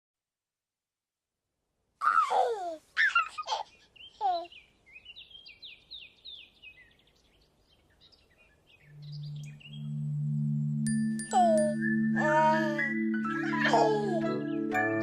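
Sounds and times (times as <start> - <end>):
baby giggling and babbling: 2.0 - 4.6, 11.3 - 14.4
birds twittering: 3.0 - 15.0.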